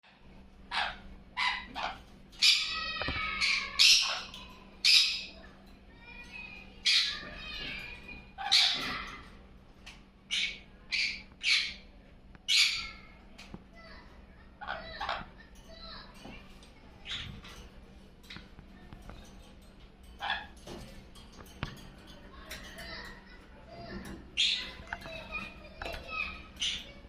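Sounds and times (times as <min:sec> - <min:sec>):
parrot squawking: 0:00.7 - 0:05.5, 0:06.4 - 0:09.3, 0:10.3 - 0:11.9, 0:12.5 - 0:13.2, 0:14.6 - 0:16.0, 0:17.0 - 0:17.4, 0:20.2 - 0:20.6, 0:24.4 - 0:27.0.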